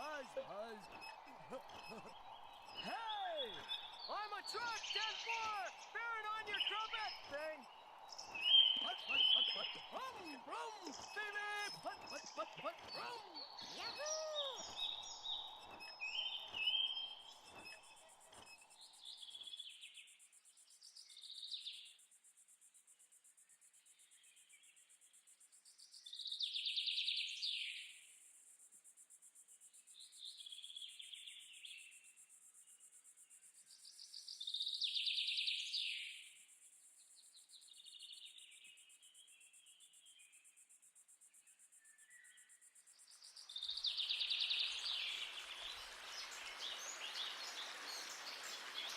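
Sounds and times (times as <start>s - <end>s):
high-pitched insect drone: 0.0s - 5.9s
songbirds chirping: 0.0s - 22.0s, 29.8s - 48.9s.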